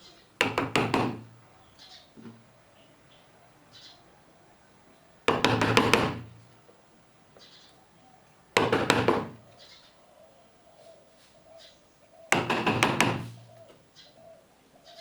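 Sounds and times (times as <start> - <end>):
hand tool knocking on wood: 0.4 - 1.3, 5.3 - 6.4, 8.6 - 9.4, 12.3 - 13.4.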